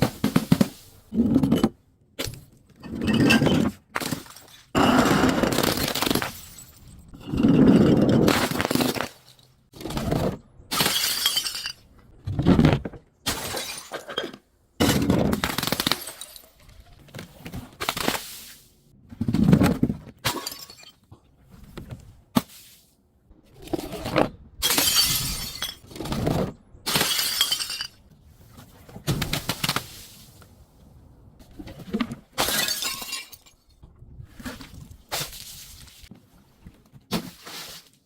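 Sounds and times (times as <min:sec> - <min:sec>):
glass bottles shattering: 0:05.6 - 0:07.5, 0:10.7 - 0:11.8, 0:13.3 - 0:16.7, 0:20.3 - 0:21.0, 0:24.6 - 0:25.9, 0:26.9 - 0:28.0, 0:32.4 - 0:33.6.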